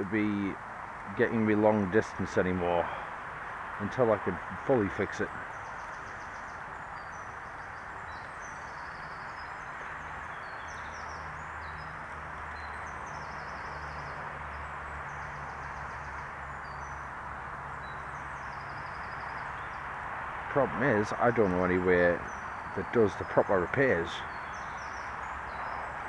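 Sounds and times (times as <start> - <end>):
birds chirping and trilling: 0.0 - 26.0.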